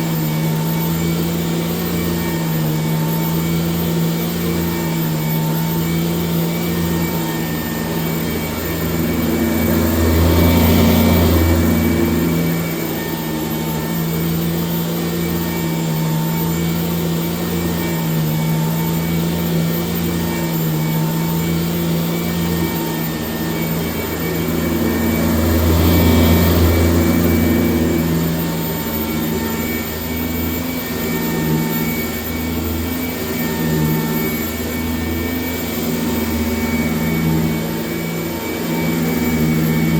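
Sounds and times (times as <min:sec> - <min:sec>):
upright vacuum cleaner running: 0:00.0 - 0:39.9.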